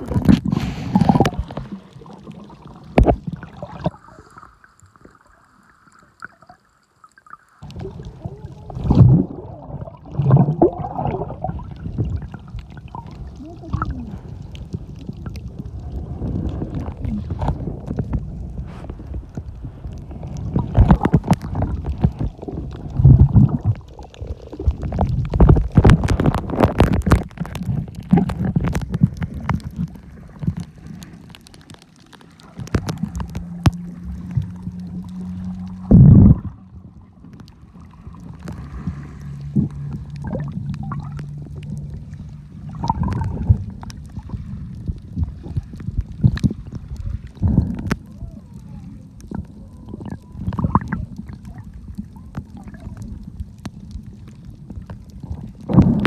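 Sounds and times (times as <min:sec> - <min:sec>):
water gurgling and sloshing: 0:00.0 - 0:56.0
low steady hum: 0:32.2 - 0:56.0.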